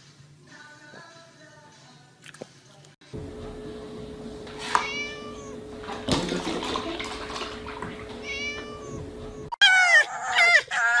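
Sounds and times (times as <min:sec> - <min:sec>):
steady hum: 0:03.1 - 0:09.6
cat meowing: 0:04.6 - 0:05.6, 0:08.2 - 0:11.0
high-pitched animal cries: 0:04.6 - 0:05.6, 0:08.2 - 0:11.0.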